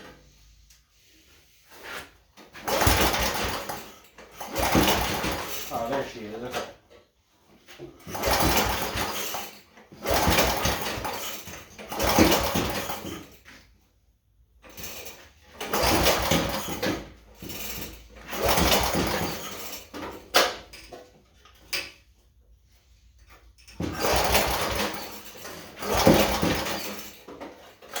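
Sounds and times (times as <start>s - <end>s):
snowblower engine sputtering: 2.6s - 6.5s, 8.1s - 9.4s, 10.0s - 13.2s, 15.6s - 20.1s, 23.8s - 28.0s.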